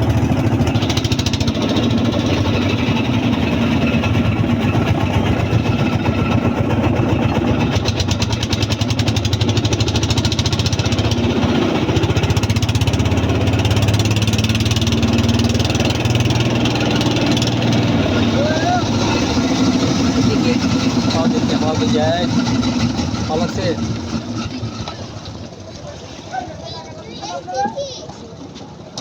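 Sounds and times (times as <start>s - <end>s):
boat engine chugging: 0.0s - 29.0s.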